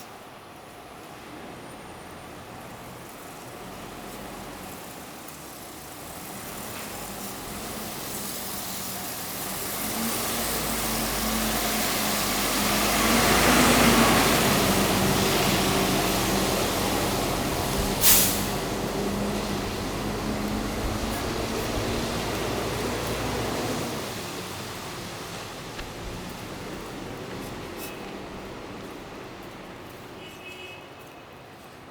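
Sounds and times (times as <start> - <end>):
heavy vehicle engine: 5.9 - 30.2
air brake hiss: 17.9 - 18.9.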